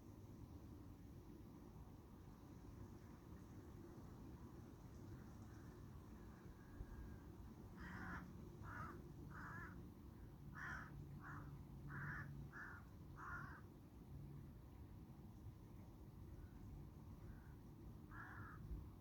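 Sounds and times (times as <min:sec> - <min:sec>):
faint background hiss: 0:00.0 - 0:19.0
crow cawing: 0:07.8 - 0:09.8, 0:10.5 - 0:13.6, 0:18.1 - 0:18.6.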